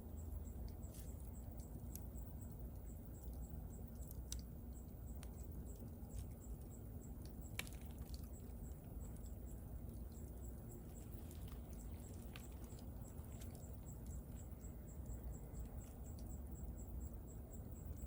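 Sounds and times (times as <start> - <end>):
rumble of bonfire flames: 0.0 - 18.0
wood crackling and popping: 3.9 - 14.8.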